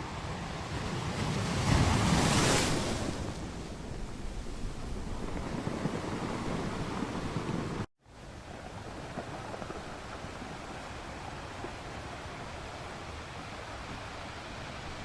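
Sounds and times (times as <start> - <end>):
sea surf washing: 0.0 - 7.9.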